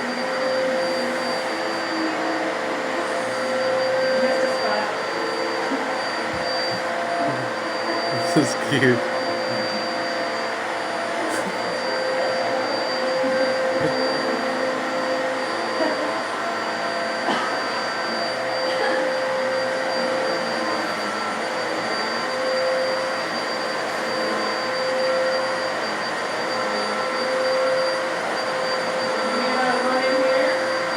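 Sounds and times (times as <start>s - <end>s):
vacuum cleaner running: 0.0s - 30.9s.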